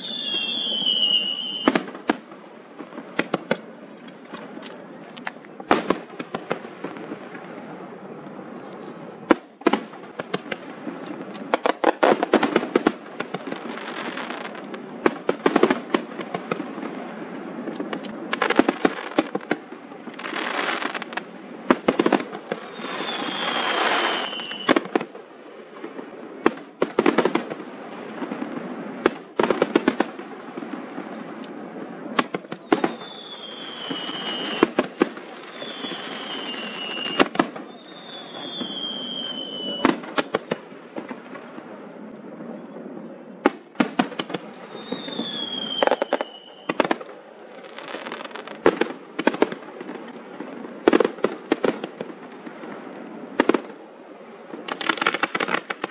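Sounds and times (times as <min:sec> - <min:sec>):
fireworks whistles falling in pitch: 0:00.0 - 0:01.9, 0:22.6 - 0:24.8, 0:32.5 - 0:34.8, 0:35.4 - 0:40.1, 0:44.7 - 0:46.9
fireworks bangs and crackles: 0:00.0 - 0:55.9.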